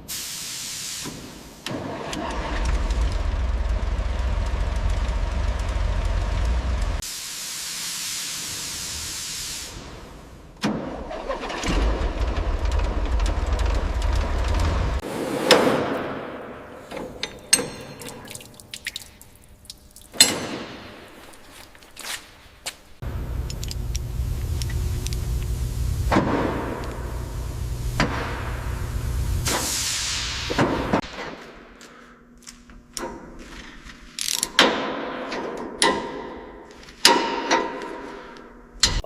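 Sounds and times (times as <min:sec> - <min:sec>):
air hissing: 0:00.0 - 0:01.7, 0:07.0 - 0:10.4, 0:23.0 - 0:31.0
motor rumbling: 0:02.4 - 0:07.0, 0:11.8 - 0:15.5, 0:23.0 - 0:31.0.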